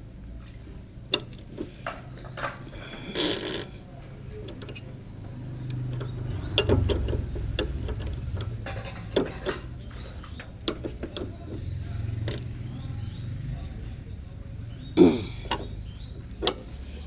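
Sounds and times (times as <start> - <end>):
hand tool clicking on metal bolt: 1.1 - 2.0, 4.3 - 4.9, 5.6 - 11.6, 15.2 - 16.7.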